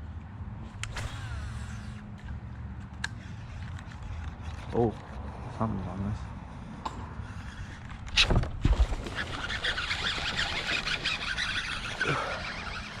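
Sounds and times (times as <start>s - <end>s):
fish splashing and rattling: 7.6s - 13.0s.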